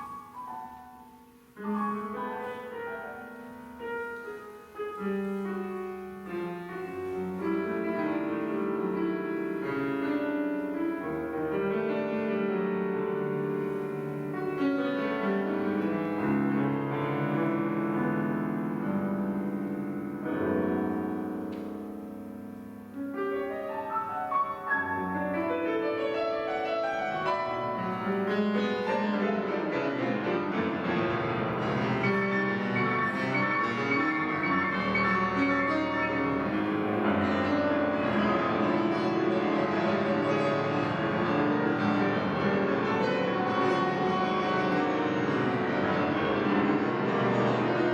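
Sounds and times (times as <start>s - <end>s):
improvised piano music: 0.0s - 47.9s.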